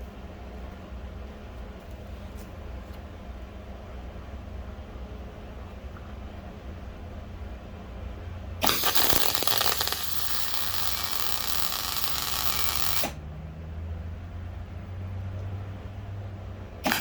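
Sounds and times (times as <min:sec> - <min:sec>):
clatter: 0:08.6 - 0:13.2
workshop tool hissing: 0:08.6 - 0:13.2.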